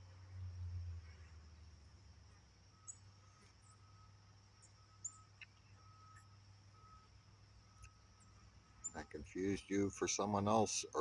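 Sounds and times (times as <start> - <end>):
faint bird chirps: 0.2 - 11.0.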